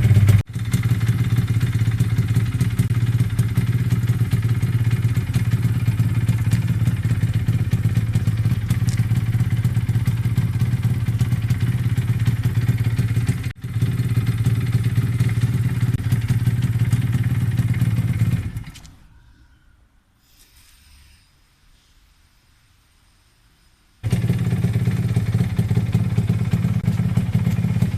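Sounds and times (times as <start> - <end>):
two-stroke motorcycle engine running: 0.0 - 18.7, 24.0 - 27.9.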